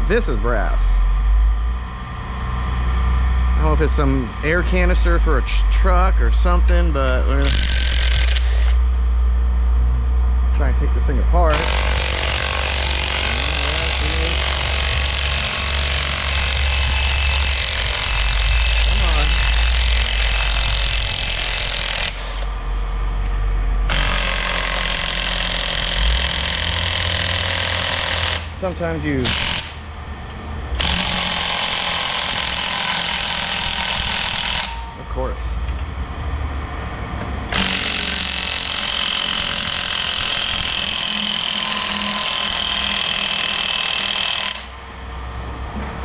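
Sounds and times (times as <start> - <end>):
impact wrench hammering: 7.3 - 8.8, 11.5 - 22.5, 23.9 - 29.8, 30.8 - 34.9, 37.5 - 44.7.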